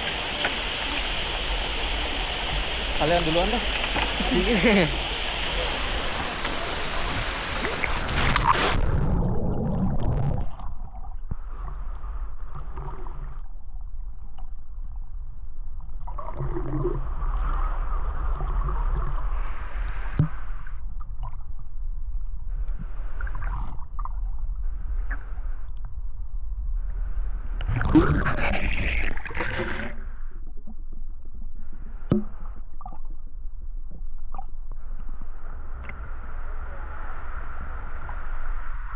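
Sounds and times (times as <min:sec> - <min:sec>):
muffled gurgling water: 0:00.0 - 0:38.9
rushing splashing water: 0:05.4 - 0:10.7
steady low rumble: 0:05.4 - 0:12.2.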